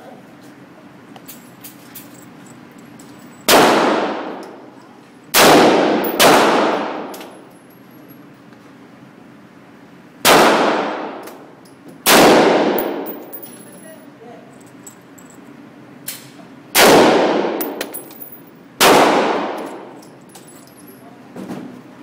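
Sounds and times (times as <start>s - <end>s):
rifle shots echoing: 3.5s - 4.4s, 5.4s - 7.1s, 10.2s - 11.2s, 12.1s - 13.5s, 16.8s - 20.0s.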